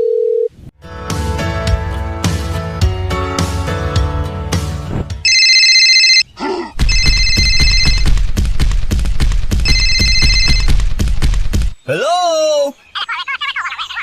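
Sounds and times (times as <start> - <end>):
music: 0.8 - 5.3
bell ringing: 5.3 - 6.2, 6.9 - 8.0, 9.7 - 10.7.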